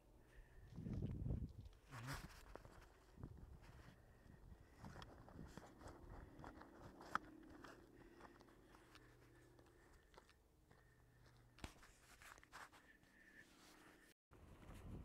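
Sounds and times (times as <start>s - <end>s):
faint crackles and clicks: 0.8s - 12.7s.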